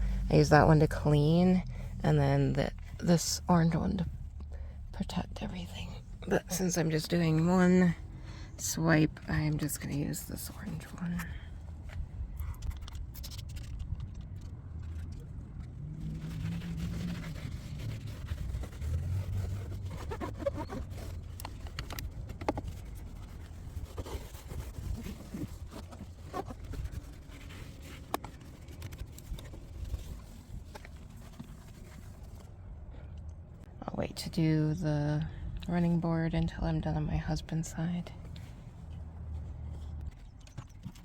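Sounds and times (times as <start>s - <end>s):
steady low rumble: 0.0s - 40.4s
small scrapes and clicks: 10.5s - 33.4s
cloth wiping car trim: 16.0s - 32.5s.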